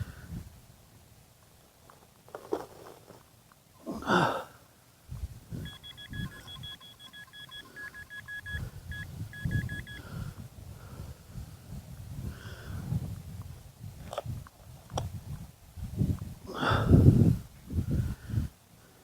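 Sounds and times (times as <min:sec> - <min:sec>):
metal detector beeping: 0:05.6 - 0:10.1.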